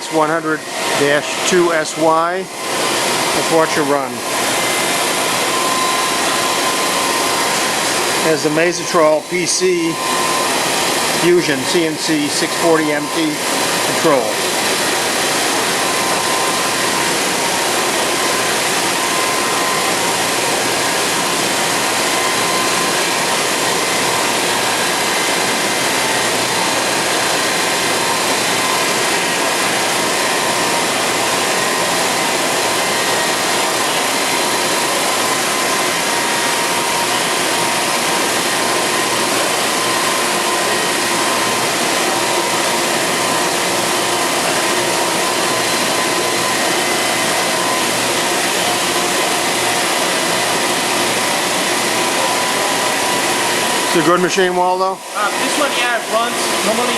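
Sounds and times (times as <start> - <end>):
lathe running with faint whines: 0.0 - 56.9.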